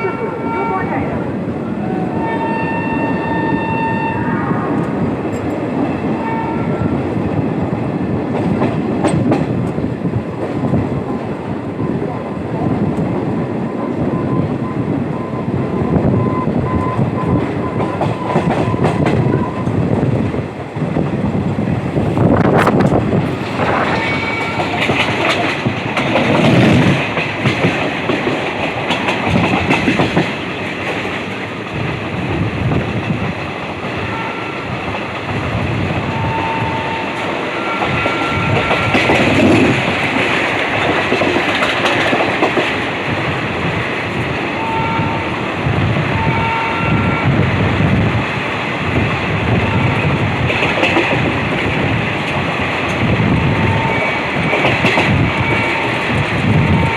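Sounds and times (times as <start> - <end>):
passenger train rumbling: 0.0 - 56.9.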